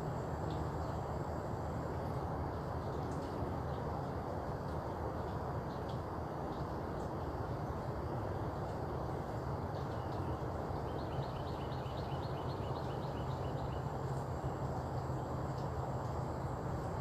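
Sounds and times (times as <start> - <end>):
bird chirping: 10.0 - 14.5.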